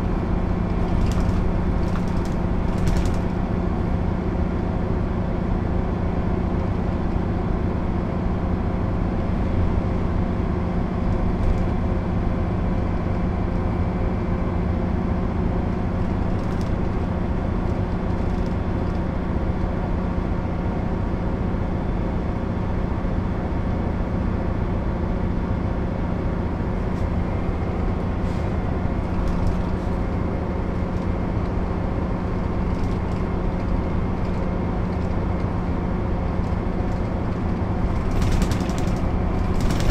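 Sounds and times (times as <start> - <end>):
bus diesel engine running: 0.0 - 39.9
road noise: 0.0 - 39.9
faint rattles: 37.9 - 39.9.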